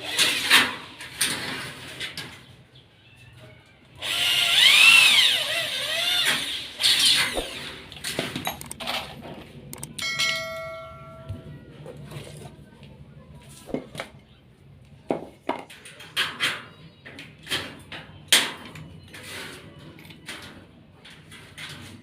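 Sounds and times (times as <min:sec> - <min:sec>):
metal parts clanking: 0:06.9 - 0:11.0
metal piece ringing: 0:09.9 - 0:11.7.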